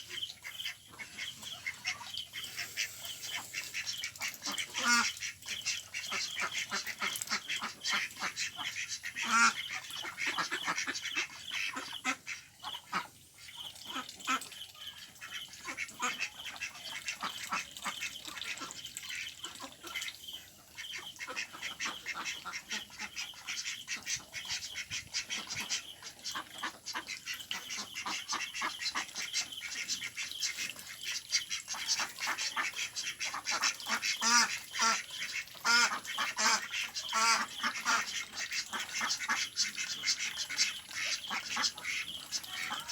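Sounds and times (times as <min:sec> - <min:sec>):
ducks quacking: 0:00.0 - 0:13.2, 0:13.8 - 0:42.9.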